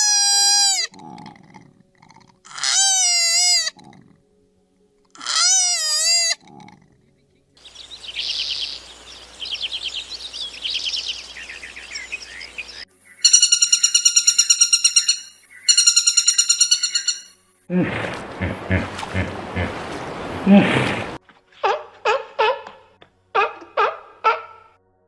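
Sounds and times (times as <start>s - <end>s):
chirping trills: 7.6s - 21.2s
fast pulsing animal call: 15.8s - 22.6s.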